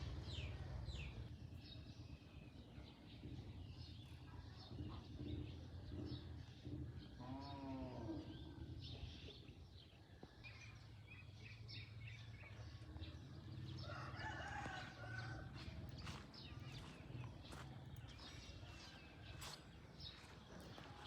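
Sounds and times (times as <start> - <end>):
small birds chirping: 0.0 - 21.0
rooster crowing: 13.8 - 15.7.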